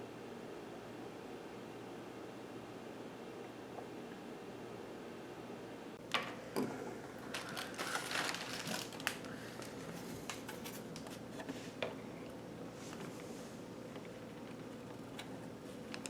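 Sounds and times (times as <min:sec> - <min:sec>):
rustling and crinkling: 0:07.2 - 0:12.0.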